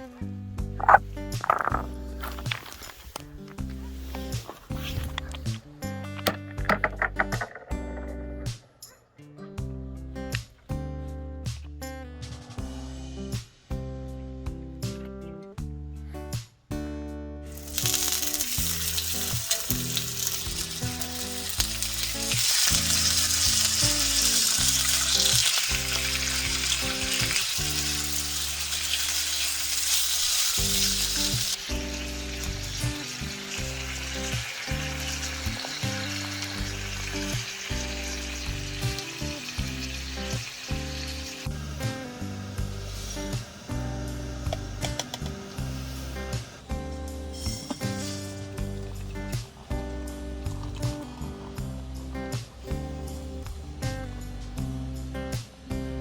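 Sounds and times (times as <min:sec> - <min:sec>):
background music: 0:00.0 - 0:56.0
food sizzling in frying: 0:00.8 - 0:05.6, 0:17.5 - 0:54.2.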